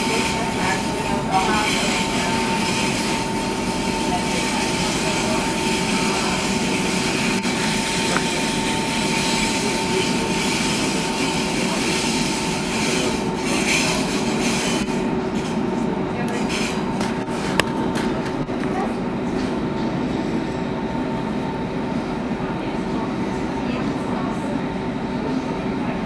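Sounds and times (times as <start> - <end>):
wheel and rail noise: 0.0 - 20.2
train steady whine: 0.0 - 26.0.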